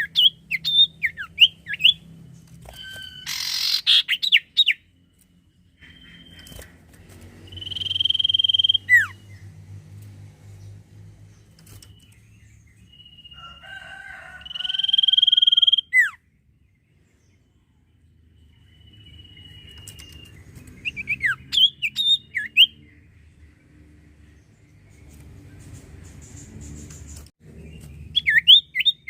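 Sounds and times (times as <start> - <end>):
bird whistling: 0.0 - 2.0, 2.7 - 4.8, 7.5 - 9.2, 14.5 - 16.2, 18.7 - 22.8, 28.1 - 29.0
bird chirps: 0.0 - 9.6, 10.5 - 29.0.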